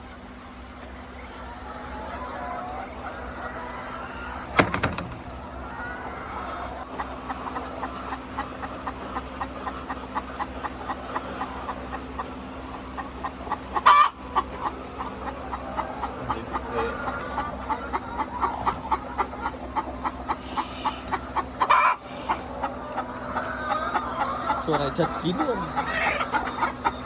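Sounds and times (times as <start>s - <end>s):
hens clucking: 0.0s - 27.0s
hen squawk: 13.0s - 27.0s.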